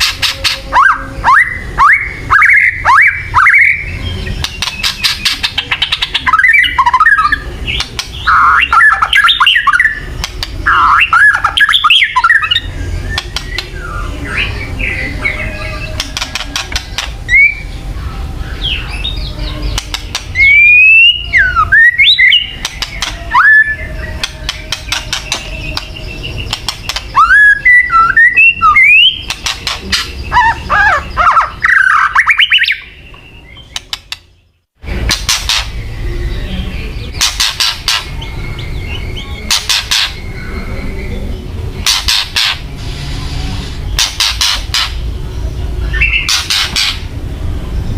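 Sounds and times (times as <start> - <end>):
bird crackling clicks: 10.2 - 10.6, 19.8 - 20.4, 26.5 - 27.2
bird whistled notes: 20.3 - 33.9.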